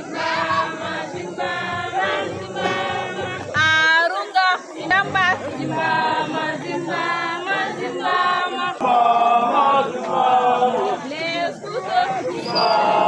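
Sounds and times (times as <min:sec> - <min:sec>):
group singing unaccompanied: 0:00.0 - 0:13.0.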